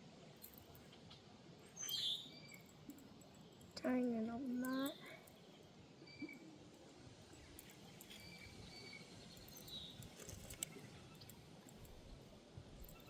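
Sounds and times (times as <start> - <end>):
faint bird chirps: 1.8 - 2.7.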